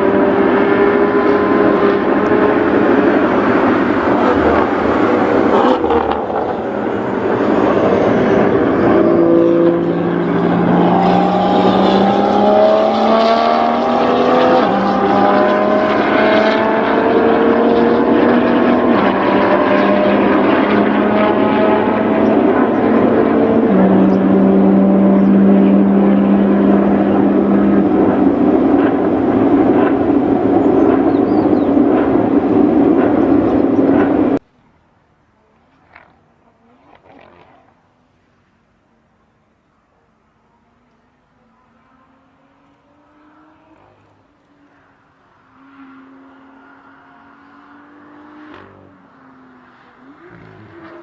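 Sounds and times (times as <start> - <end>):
steady rush of noise: 0.0 - 23.6, 25.8 - 35.6
car engine accelerating: 0.0 - 34.4, 40.4 - 51.0.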